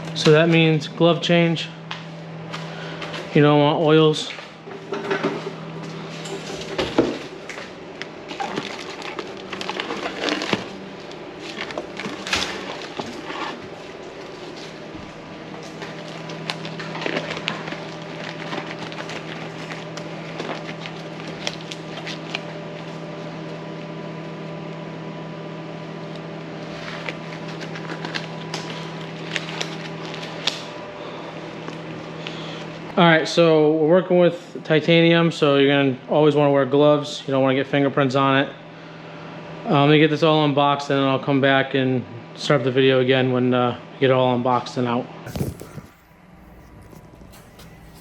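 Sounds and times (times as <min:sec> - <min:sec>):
low electrical hum: 0:00.0 - 0:48.0
crackling and rustling of handling: 0:04.2 - 0:23.0, 0:26.6 - 0:30.7.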